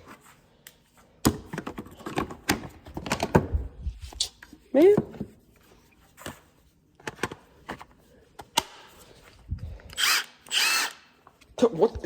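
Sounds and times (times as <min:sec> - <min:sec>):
clicks and knocks of tool cases: 0:01.2 - 0:03.6, 0:07.0 - 0:08.9.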